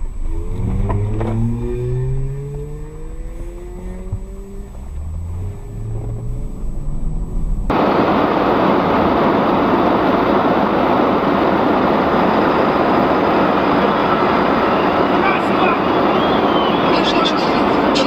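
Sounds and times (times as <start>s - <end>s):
vehicle engine rising in pitch: 0.0s - 18.0s
loud steady rushing noise: 4.4s - 18.0s.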